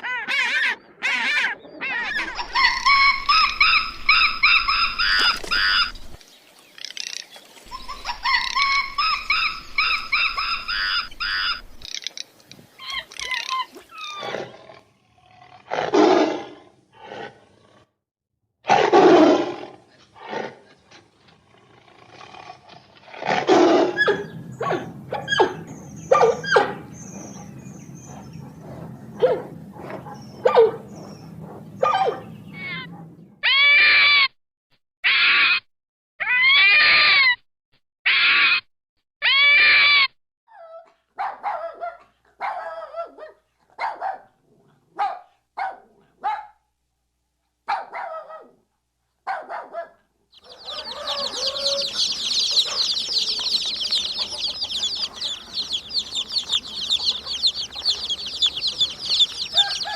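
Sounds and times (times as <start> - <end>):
high-pitched animal calls: 0.0 - 6.0, 7.7 - 12.1, 12.8 - 14.5, 32.5 - 34.3, 35.0 - 37.4, 38.1 - 40.1, 50.4 - 59.9
harsh animal calls: 0.0 - 6.1, 7.7 - 12.1, 50.4 - 59.9.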